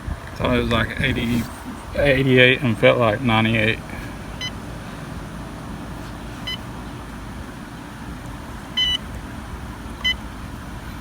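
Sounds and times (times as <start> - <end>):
steady low hum: 0.0 - 11.0
short electronic beeps: 6.4 - 6.6, 8.8 - 9.0.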